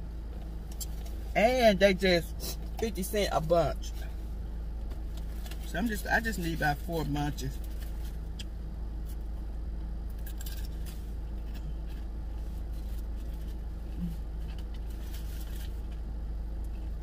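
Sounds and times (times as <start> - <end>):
idling car hum: 0.0 - 17.0
chewing and crunching: 0.7 - 1.2, 4.8 - 5.8, 10.1 - 17.0.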